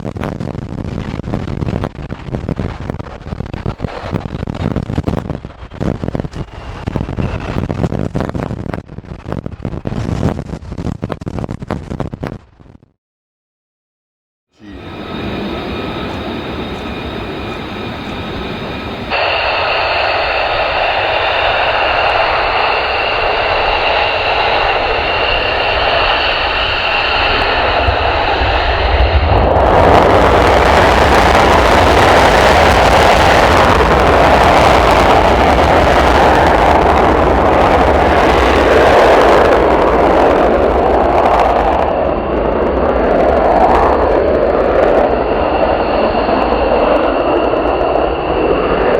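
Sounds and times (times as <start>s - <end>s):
jet engine whine: 0.9s - 8.8s, 14.6s - 48.9s
jet roaring past: 14.6s - 48.9s.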